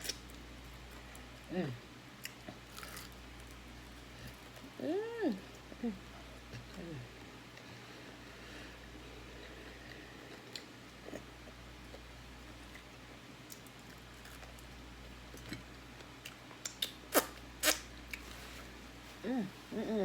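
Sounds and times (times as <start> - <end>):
chewing fried chicken: 2.2 - 4.7.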